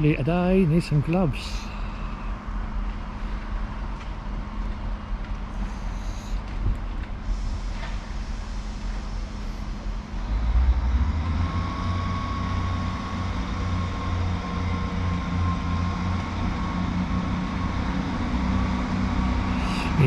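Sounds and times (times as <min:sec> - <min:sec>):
diesel train rumble: 0:00.0 - 0:20.0
thin steady whine: 0:19.4 - 0:20.0.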